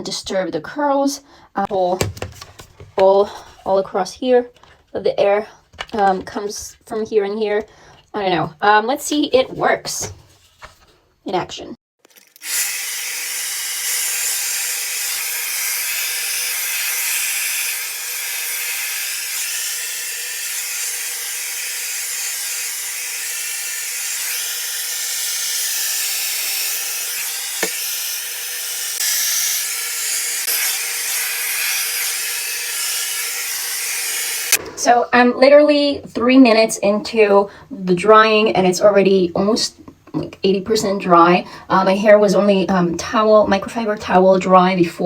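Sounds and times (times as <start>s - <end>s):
hair dryer running: 12.4s - 34.6s.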